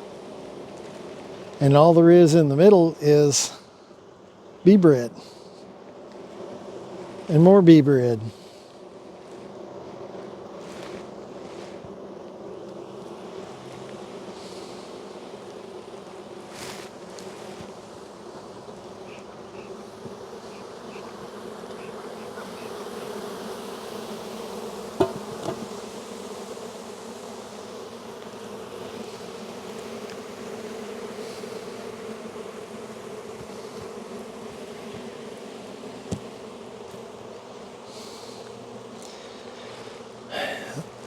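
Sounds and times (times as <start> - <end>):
bees buzzing: 0.0 - 41.0
sharp knocks: 25.0 - 25.7.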